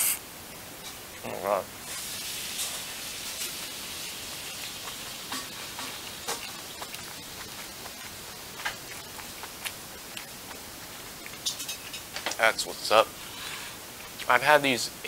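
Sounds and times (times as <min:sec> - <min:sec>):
steady hiss: 0:00.0 - 0:15.0
person chewing soft food: 0:02.6 - 0:12.0
wet mouth clicks: 0:04.8 - 0:11.8.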